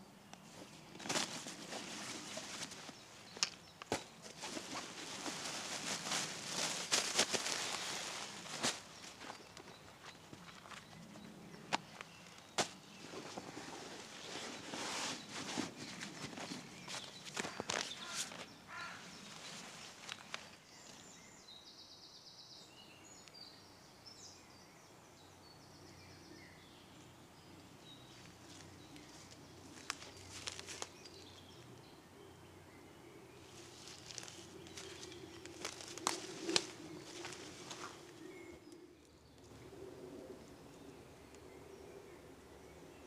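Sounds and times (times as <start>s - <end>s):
birdsong chirps and trills: 0.0s - 43.0s
crunching and rustling: 0.4s - 21.1s, 28.5s - 31.4s, 33.4s - 38.8s.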